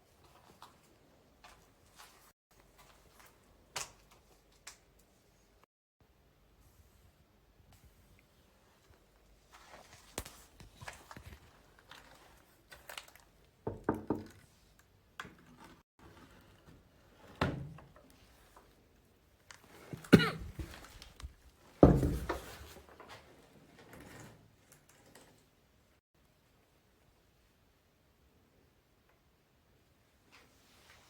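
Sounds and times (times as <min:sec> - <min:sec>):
rustling of handled objects: 0:00.0 - 0:05.5, 0:06.8 - 0:13.6.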